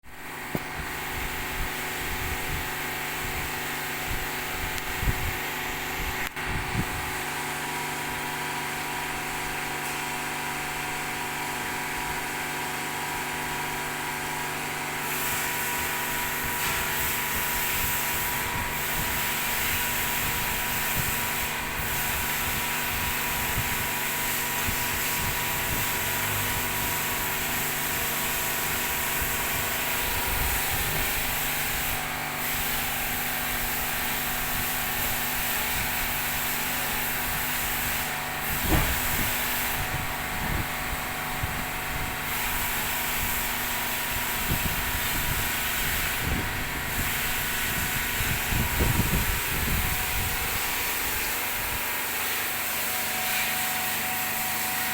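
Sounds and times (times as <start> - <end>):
hiss: 15.0 - 39.9.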